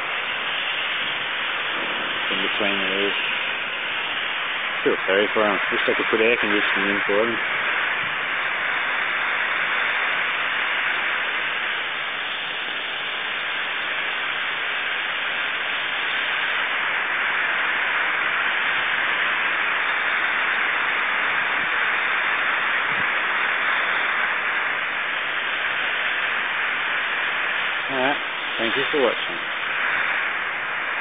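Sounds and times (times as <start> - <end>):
garden hose spraying water: 0.0 - 16.5, 27.4 - 30.3.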